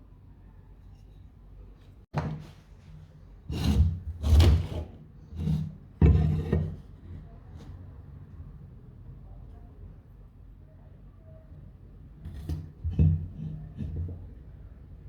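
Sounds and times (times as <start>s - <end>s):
wood scraping on wood: 3.5s - 6.9s.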